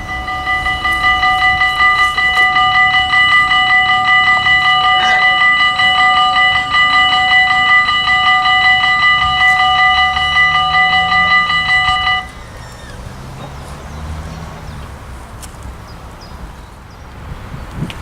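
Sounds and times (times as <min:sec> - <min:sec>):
crossing warning bell ringing: 0:00.0 - 0:14.9.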